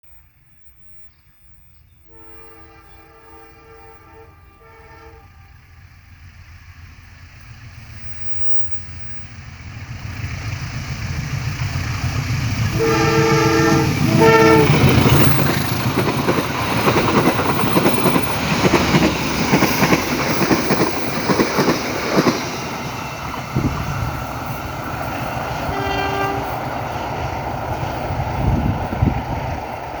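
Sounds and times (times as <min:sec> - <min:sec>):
train rumble: 0:00.2 - 0:30.0
train horn: 0:02.1 - 0:05.8, 0:12.7 - 0:15.4, 0:25.7 - 0:26.6
wheels clacking over rail joints: 0:07.4 - 0:28.2.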